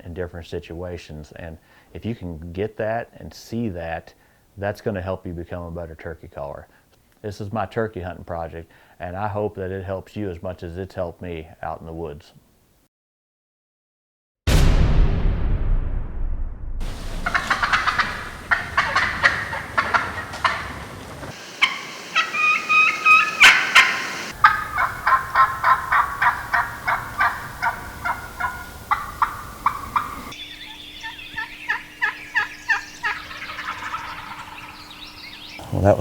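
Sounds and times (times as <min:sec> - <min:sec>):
turkey hen yelping: 0:17.0 - 0:35.6.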